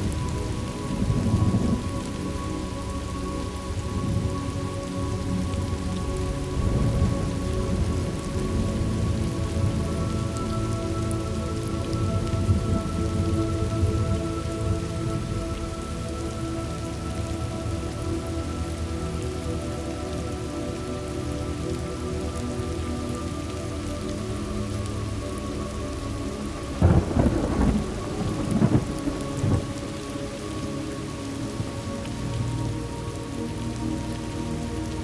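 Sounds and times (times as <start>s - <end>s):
ambient music pad: 0.0s - 35.0s
steady rain: 0.0s - 35.0s
thunder rumbling: 26.8s - 30.0s.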